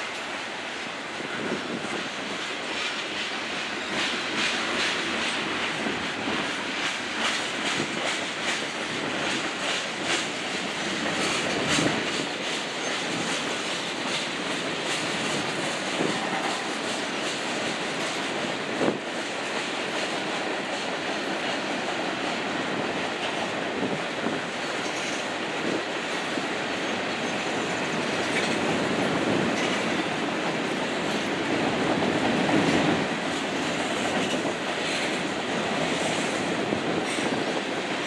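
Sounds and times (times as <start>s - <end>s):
train wheels clacking over rail joints: 0.0s - 38.0s
high wheel squeal: 11.0s - 13.3s.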